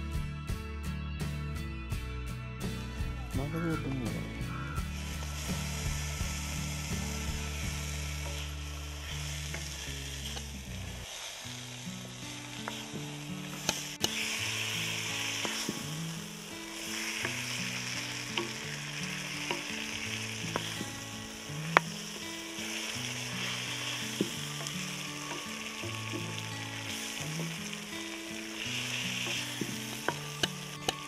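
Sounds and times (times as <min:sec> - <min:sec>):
eel sizzling in hot oil: 0:04.8 - 0:31.0
spoon tapping pan: 0:12.6 - 0:16.0, 0:16.7 - 0:21.1, 0:22.5 - 0:31.0.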